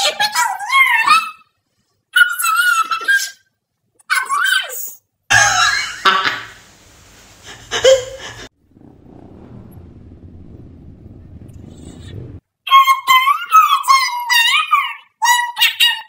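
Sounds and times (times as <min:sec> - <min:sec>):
low steady rumble: 0:08.4 - 0:12.4.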